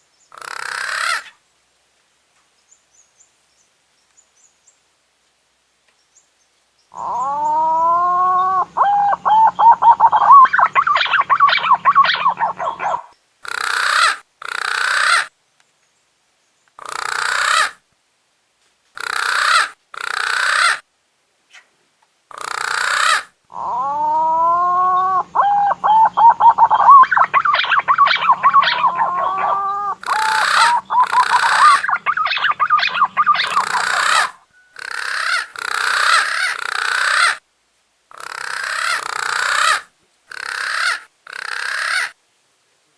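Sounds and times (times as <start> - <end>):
pigeon whistling and warbling: 7.0 - 13.1, 23.6 - 34.7.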